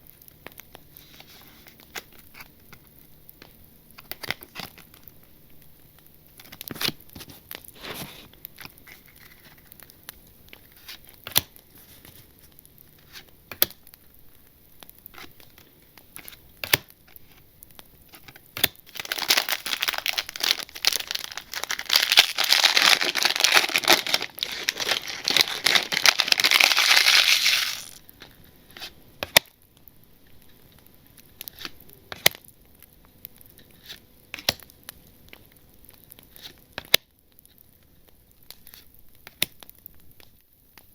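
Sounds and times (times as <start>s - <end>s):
wrapper crinkling and tearing: 18.1s - 28.1s.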